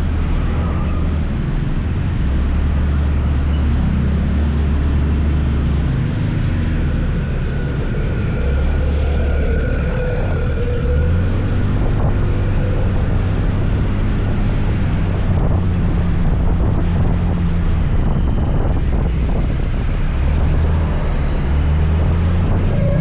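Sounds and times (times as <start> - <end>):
wind on microphone: 5.2 - 23.0.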